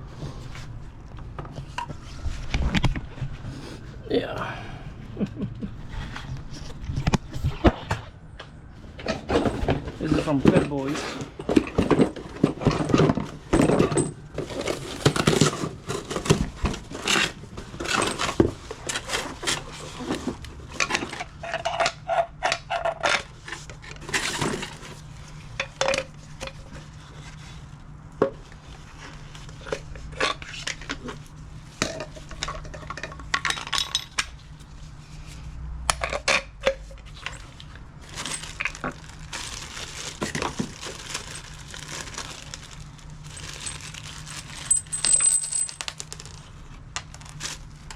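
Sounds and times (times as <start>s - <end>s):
steady low hum: 0.0s - 21.6s
metal tools clinking: 43.3s - 46.0s.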